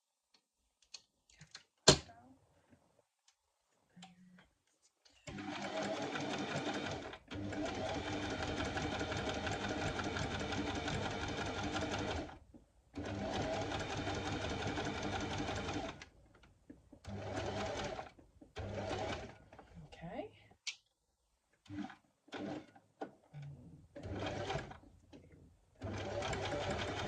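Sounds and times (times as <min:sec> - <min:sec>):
electric sewing machine stitching: 0:05.3 - 0:12.4, 0:13.0 - 0:16.0, 0:17.0 - 0:19.4, 0:21.7 - 0:22.7, 0:24.0 - 0:24.8, 0:25.8 - 0:27.0.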